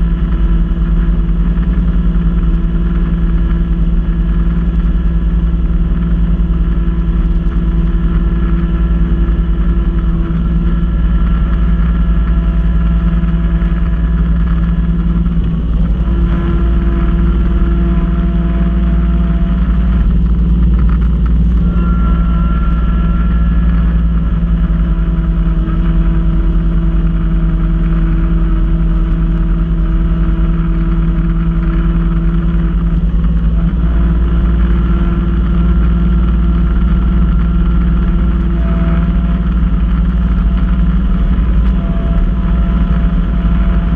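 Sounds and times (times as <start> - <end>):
snow blower whine: 0.0 - 43.9
tractor diesel engine running: 0.0 - 43.9.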